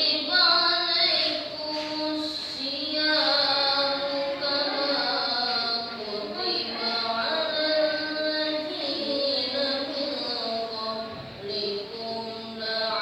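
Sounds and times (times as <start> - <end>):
person chanting melodically: 0.0 - 13.0.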